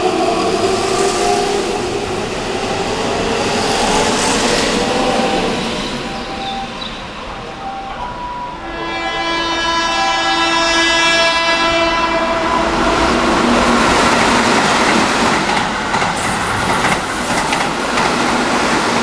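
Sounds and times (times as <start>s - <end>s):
train horn: 7.5s - 14.1s
train wheels clacking on rails: 12.6s - 19.0s.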